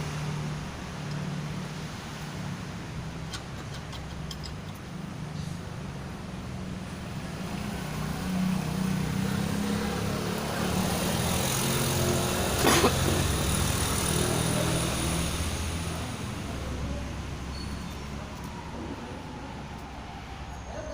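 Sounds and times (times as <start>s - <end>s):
vehicle engine passing by: 7.1s - 20.9s.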